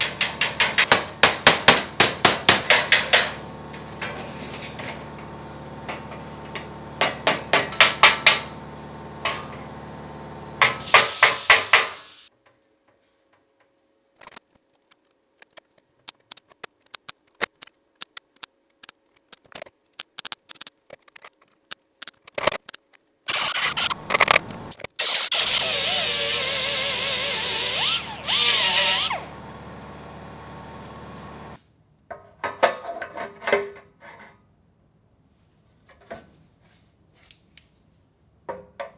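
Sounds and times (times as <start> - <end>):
power tool running: 0.0 - 12.3, 23.3 - 31.6.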